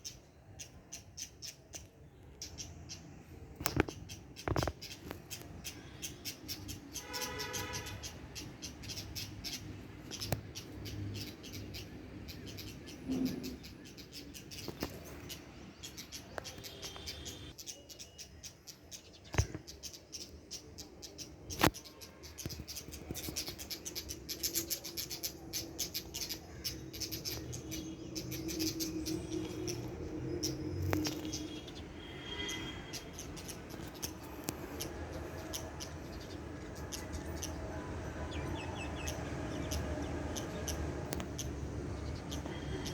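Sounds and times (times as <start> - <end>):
small birds chirping: 0.0 - 42.9
sharp clicks: 41.0 - 41.5.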